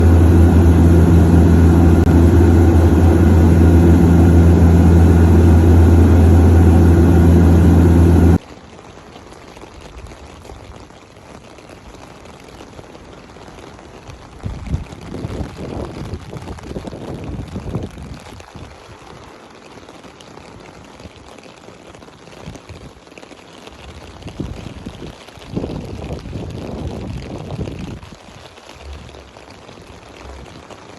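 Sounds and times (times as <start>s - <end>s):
loud engine humming: 0.0s - 8.4s
rain falling: 0.0s - 30.9s.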